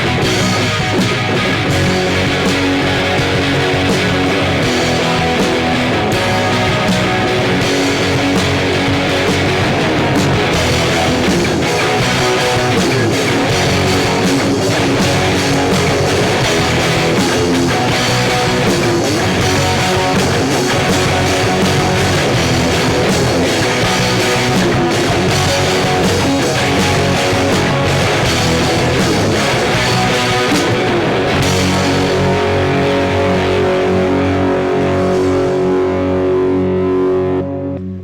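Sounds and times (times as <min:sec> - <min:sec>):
rock band playing: 0:00.0 - 0:37.8.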